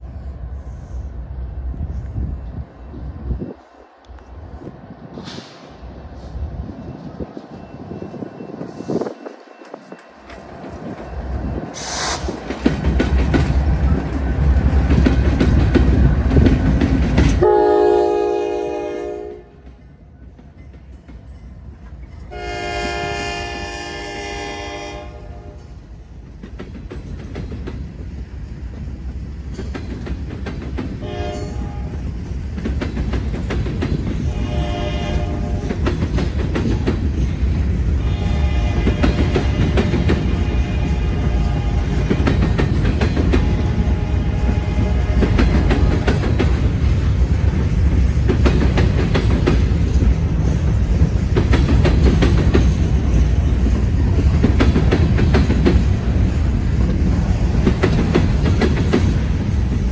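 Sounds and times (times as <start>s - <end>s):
train wheels clattering on rail: 5.1s - 23.4s, 24.6s - 59.9s
locomotive horn blasts: 17.4s - 19.6s, 22.3s - 25.7s, 31.0s - 32.0s, 34.3s - 35.7s, 38.0s - 42.2s, 43.4s - 46.0s.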